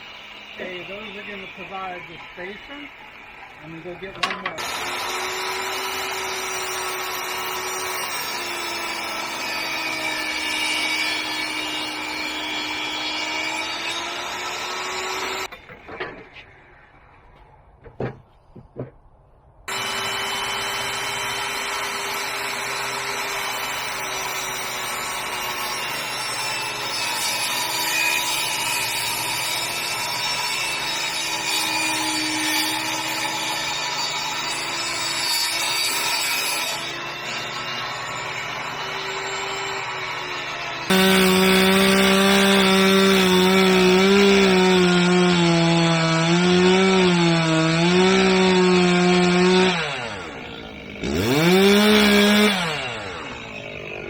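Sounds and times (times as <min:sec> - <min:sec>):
chainsaw cutting log: 0:04.0 - 0:15.5, 0:19.7 - 0:54.0
knocks: 0:17.8 - 0:19.0.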